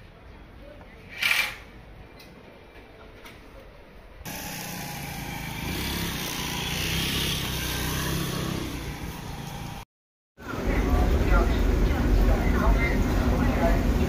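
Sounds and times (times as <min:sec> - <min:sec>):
street noise: 0:00.0 - 0:14.0
motorbike engine passing: 0:04.2 - 0:09.9.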